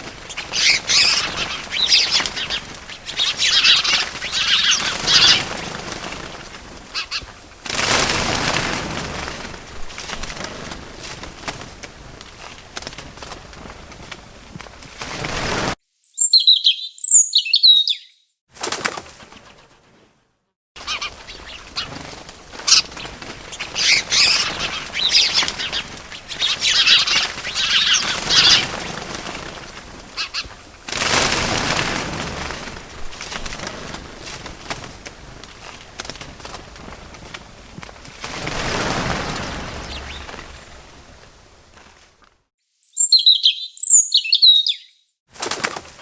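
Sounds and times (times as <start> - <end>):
rustling noise: 0.0 - 15.8, 18.6 - 42.5
wings flapping: 0.0 - 15.8, 18.5 - 20.2, 20.8 - 42.5, 45.3 - 46.0
bird chirping: 0.3 - 5.5, 15.9 - 18.4, 22.7 - 28.9, 39.2 - 40.6, 42.7 - 45.2.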